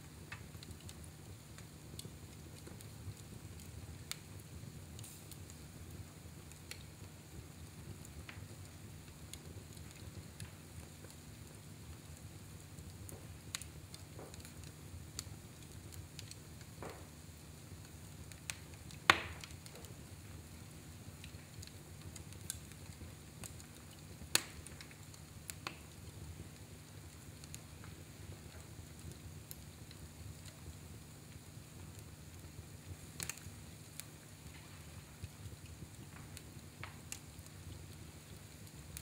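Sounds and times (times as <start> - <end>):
fire crackling in a fireplace: 0.0 - 39.0
sharp wood cracks: 19.1 - 19.6.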